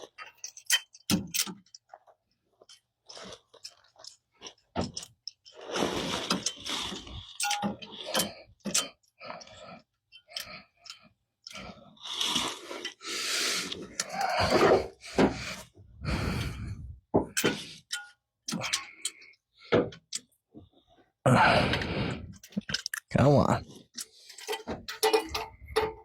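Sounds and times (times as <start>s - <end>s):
rustling and scraping: 1.8s - 8.5s, 11.6s - 17.8s
tools clicking and scraping: 6.2s - 11.6s, 23.9s - 26.0s.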